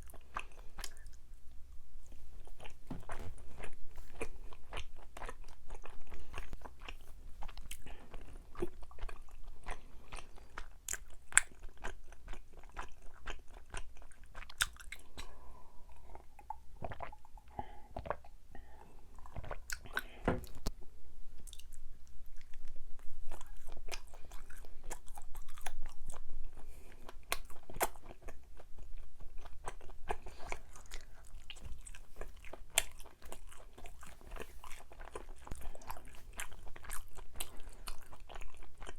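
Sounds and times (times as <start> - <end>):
close chewing with mouth clicks: 0.0 - 20.8, 21.4 - 38.9.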